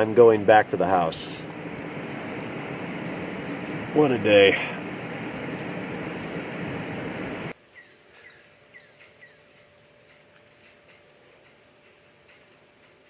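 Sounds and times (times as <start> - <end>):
faint steady hum: 0.0 - 7.6
steady rushing noise: 0.0 - 7.6
bird chirping: 7.7 - 9.5.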